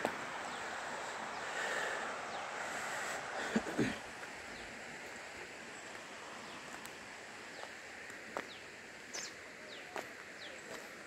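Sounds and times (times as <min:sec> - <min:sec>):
birds chirping: 0:00.0 - 0:11.0
steady outdoor hiss: 0:00.0 - 0:11.0.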